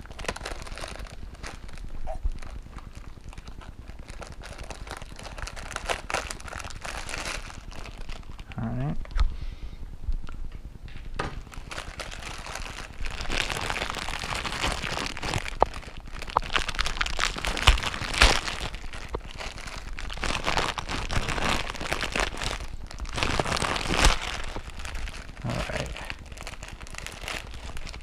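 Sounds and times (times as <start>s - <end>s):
plastic wrapper crinkling: 0.0s - 9.2s, 10.2s - 28.0s.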